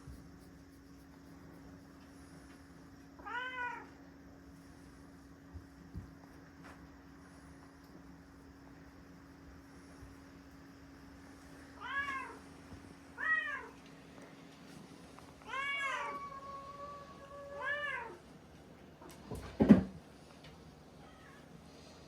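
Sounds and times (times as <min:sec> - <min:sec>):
cat meowing: 0:15.5 - 0:18.2.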